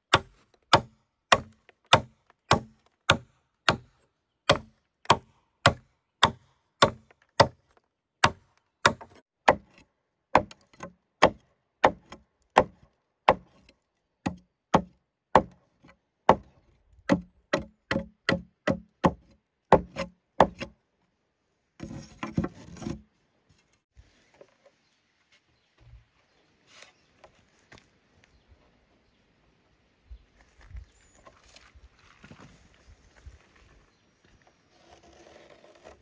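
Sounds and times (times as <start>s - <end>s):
chopping blows on wood: 17.1s - 20.7s.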